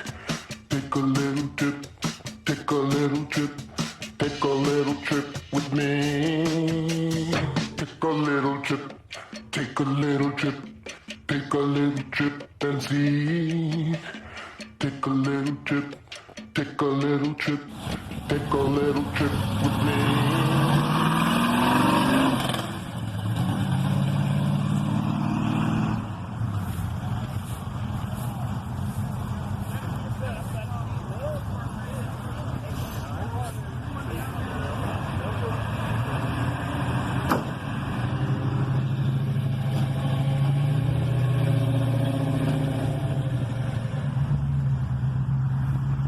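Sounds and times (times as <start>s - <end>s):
car engine revving: 16.6s - 46.0s.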